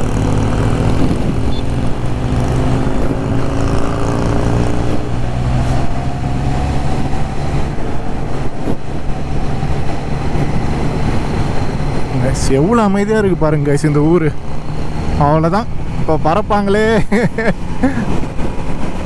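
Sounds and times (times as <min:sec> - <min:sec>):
motorcycle engine running: 0:00.0 - 0:12.4
road and wind noise: 0:00.0 - 0:19.0.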